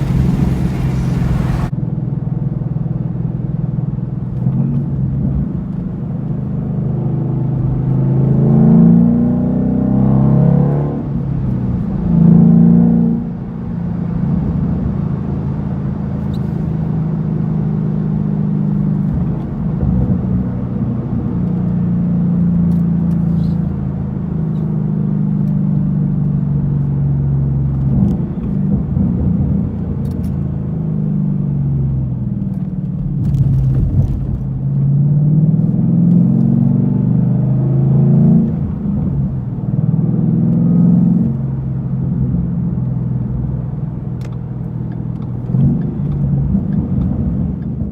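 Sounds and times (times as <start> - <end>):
car engine revving: 0.0 - 1.7.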